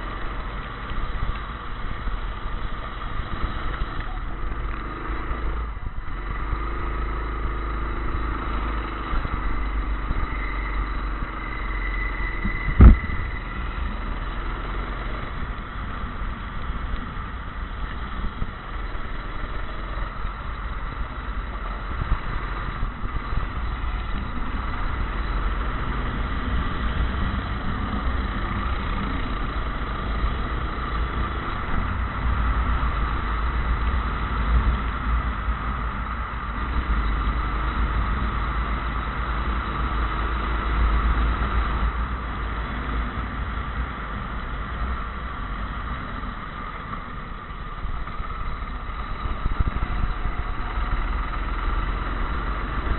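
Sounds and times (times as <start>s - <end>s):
go-kart engine running: 0.0s - 52.9s.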